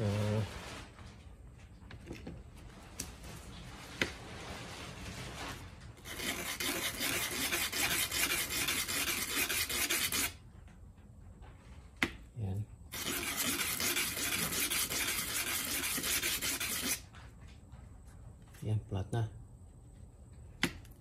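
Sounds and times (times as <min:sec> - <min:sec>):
metal contact being scraped: 0:03.6 - 0:10.4, 0:12.9 - 0:17.2.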